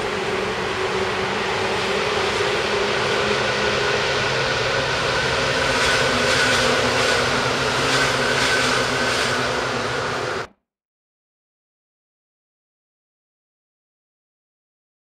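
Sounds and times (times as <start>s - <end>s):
trains rumbling over steel bridge: 0.0s - 10.5s.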